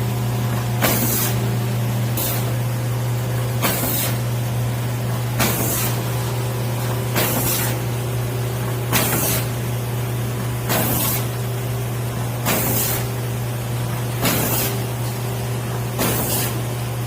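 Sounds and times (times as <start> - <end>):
packing machine humming: 0.0 - 17.0.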